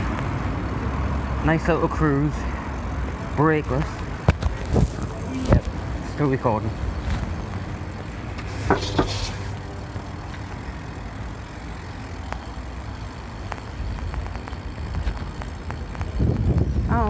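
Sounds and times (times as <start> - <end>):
bicycle riding rumble: 0.0 - 17.0
wind on microphone: 13.9 - 17.0.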